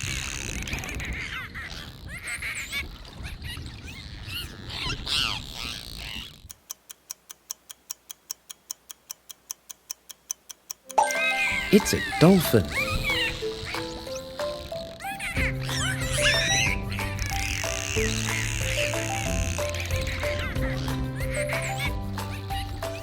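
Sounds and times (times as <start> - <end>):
dolphin whistles and squeaks: 0.0 - 6.5, 11.0 - 23.0
clock ticking: 6.5 - 14.6.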